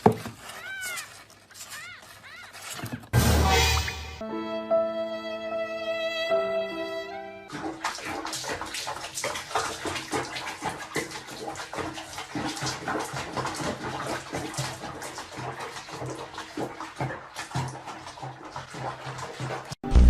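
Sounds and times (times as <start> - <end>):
water splashing: 7.5 - 20.0.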